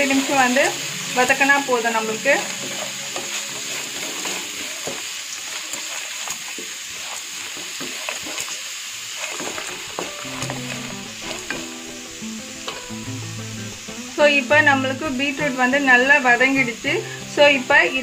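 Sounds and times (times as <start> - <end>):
vegetables sizzling in oil: 0.0 - 18.0
spoon scraping pan: 2.3 - 13.0.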